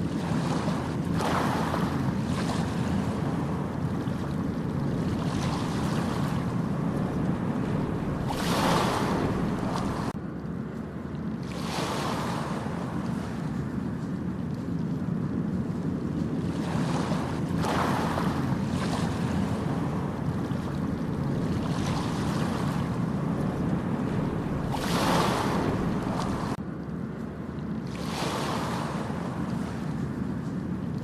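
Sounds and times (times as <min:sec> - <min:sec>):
low rumble of waves: 0:00.0 - 0:31.0.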